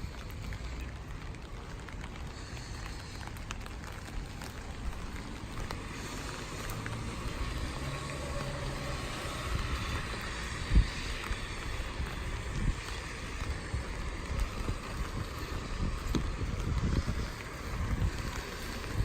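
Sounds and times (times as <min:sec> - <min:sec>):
steady rain falling: 0:00.0 - 0:19.0
vehicle engine hum: 0:00.0 - 0:19.0.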